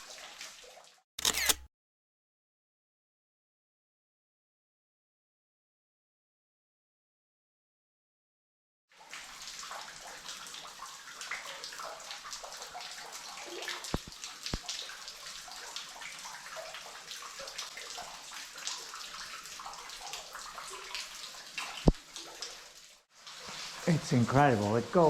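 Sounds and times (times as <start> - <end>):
water splashing and trickling: 0.0 - 1.1, 8.9 - 25.0.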